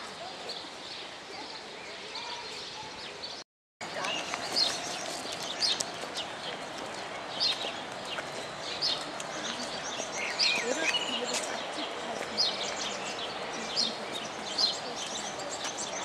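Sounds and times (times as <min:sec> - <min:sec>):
outdoor background murmur: 0:00.0 - 0:16.0
small birds chirping: 0:00.0 - 0:16.0.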